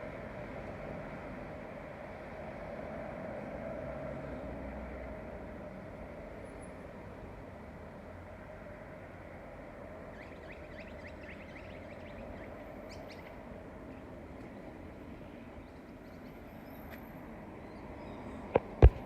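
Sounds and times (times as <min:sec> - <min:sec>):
road traffic noise: 0:00.0 - 0:19.0
small birds chirping: 0:10.1 - 0:13.4
sharp knocks: 0:18.6 - 0:19.0.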